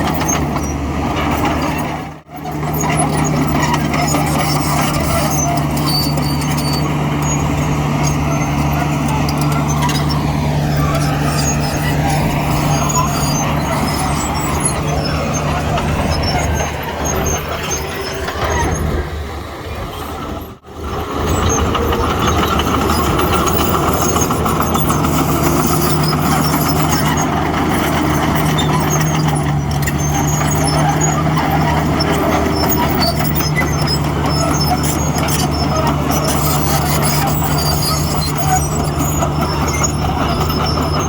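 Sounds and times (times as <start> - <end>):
diesel machinery engine drone: 0.0 - 41.0.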